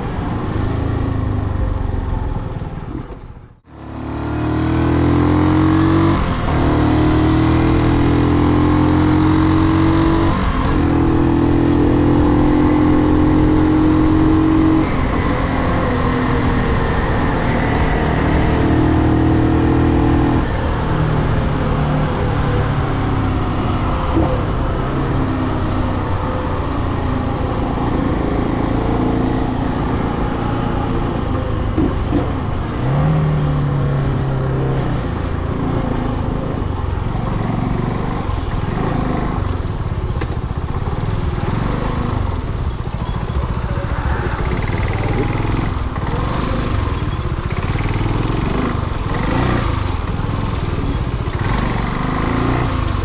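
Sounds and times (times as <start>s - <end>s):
motorcycle engine running: 35.2s - 53.0s.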